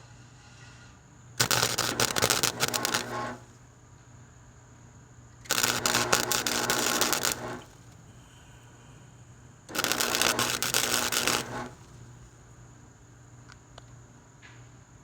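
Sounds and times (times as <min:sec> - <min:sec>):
electric arc welding crackle: 0:01.4 - 0:03.6, 0:05.4 - 0:08.0, 0:09.7 - 0:12.3.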